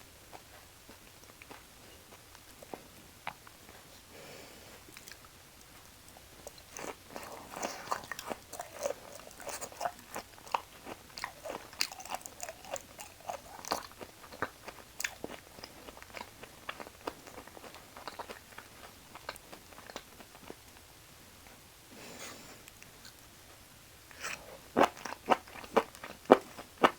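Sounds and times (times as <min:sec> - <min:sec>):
chewing and biting: 0:06.4 - 0:20.6.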